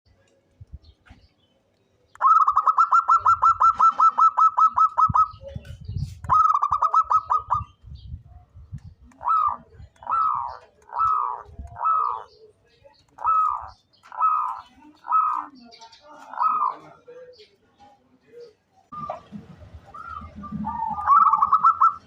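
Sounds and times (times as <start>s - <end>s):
dove cooing: 2.2s - 5.7s, 6.3s - 7.8s, 9.0s - 12.5s, 13.2s - 15.6s, 16.2s - 17.0s, 18.9s - 22.0s.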